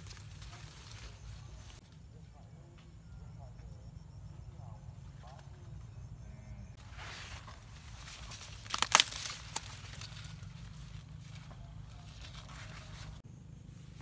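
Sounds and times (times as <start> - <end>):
crackling rustling noise: 0.0 - 2.0, 6.8 - 13.2
steady low hum: 0.0 - 14.0.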